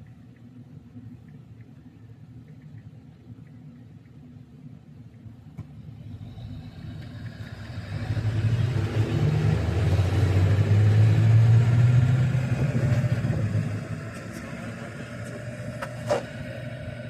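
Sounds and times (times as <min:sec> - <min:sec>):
vehicle engine droning: 0:05.6 - 0:17.0.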